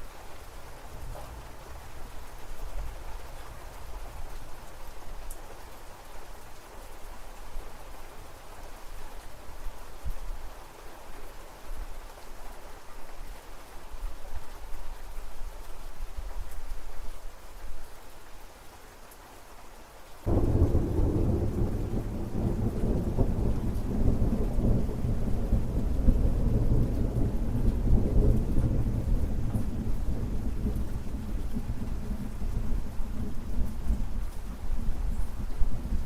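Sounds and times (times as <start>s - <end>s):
rain falling: 0.0s - 36.0s
thunder rumbling: 20.3s - 36.0s.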